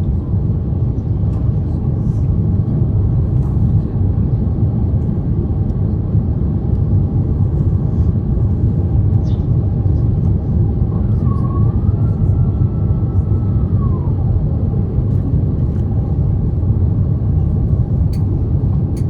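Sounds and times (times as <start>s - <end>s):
airliner cabin engine rumble: 0.0s - 19.0s.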